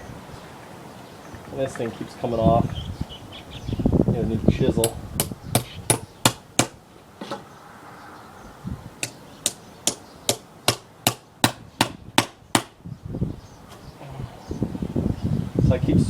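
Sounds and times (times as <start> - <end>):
hammer striking wood chisel: 4.8 - 6.8, 9.0 - 12.7.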